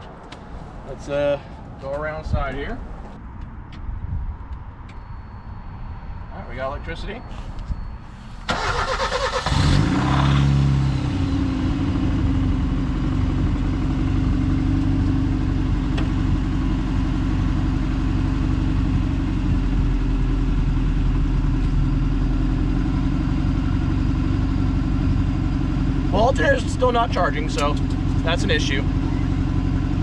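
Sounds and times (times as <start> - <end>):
car engine idling: 7.4 - 30.0
starter motor cranking: 8.5 - 9.8.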